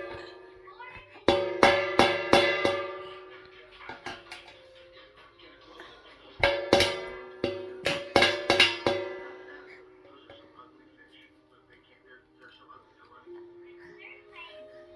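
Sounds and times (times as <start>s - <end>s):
ringing metal object struck: 0.0s - 4.6s, 6.4s - 10.6s.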